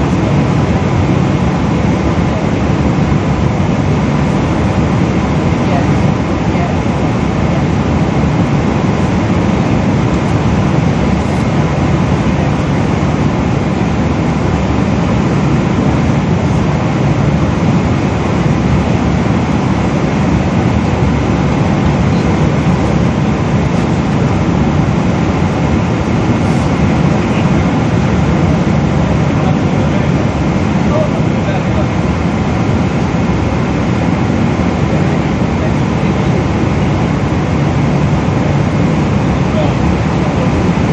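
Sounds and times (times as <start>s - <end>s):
airplane cabin engine drone: 0.0s - 40.9s.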